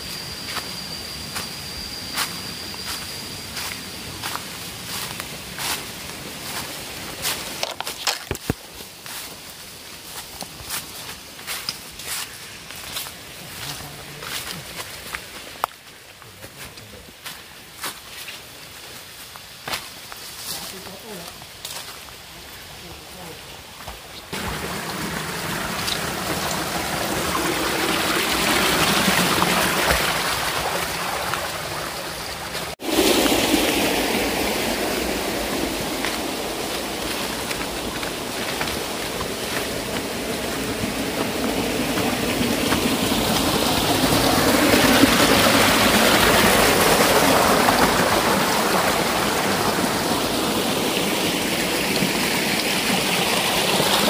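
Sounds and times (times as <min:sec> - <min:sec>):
water rushing: 0:24.3 - 0:54.0.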